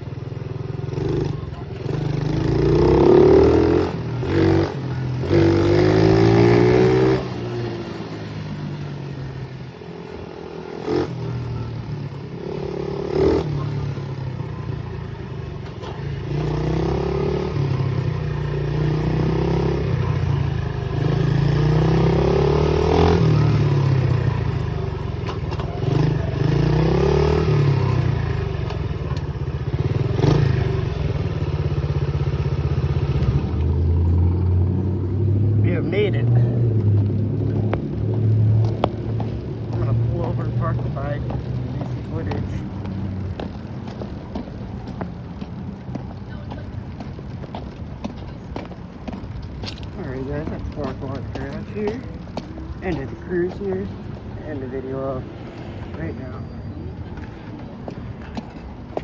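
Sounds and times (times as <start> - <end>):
pit bike engine revving: 0.1 - 44.9, 49.2 - 55.4.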